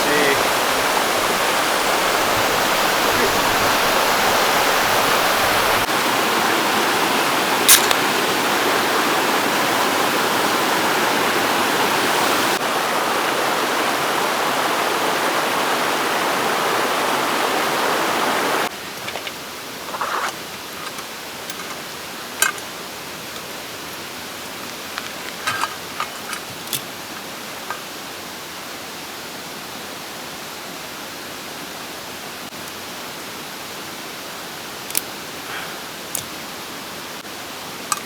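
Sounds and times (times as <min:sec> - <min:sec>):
mountain stream rushing: 0:00.0 - 0:38.0
sharp click: 0:07.7 - 0:08.0.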